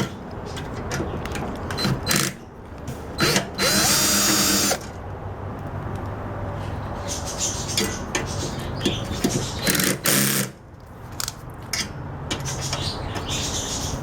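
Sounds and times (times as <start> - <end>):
cordless drill running: 3.2 - 4.8.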